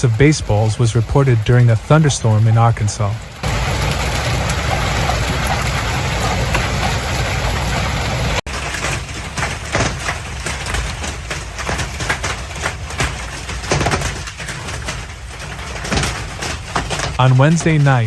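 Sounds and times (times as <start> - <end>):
hail falling hard: 0.0 - 18.0
hailstones knocking: 0.0 - 18.0.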